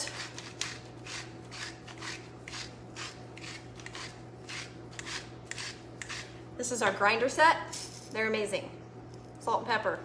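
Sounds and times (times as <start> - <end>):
salt grinder grinding: 0.0 - 6.3.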